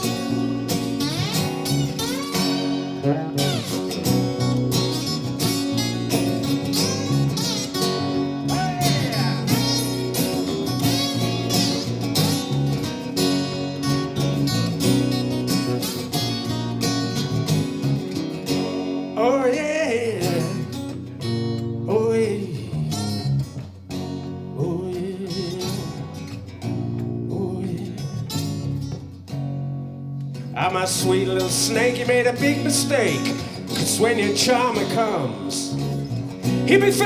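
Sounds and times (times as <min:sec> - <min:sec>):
lead guitar bending notes: 0:00.0 - 0:21.9, 0:30.8 - 0:37.0
strummed guitar chords: 0:00.0 - 0:37.0.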